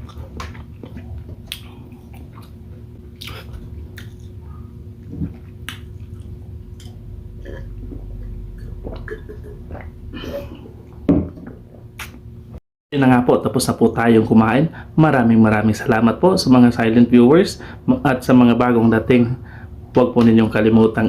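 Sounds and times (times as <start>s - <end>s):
close chewing with wet smacking: 0.0s - 4.4s, 5.0s - 7.0s.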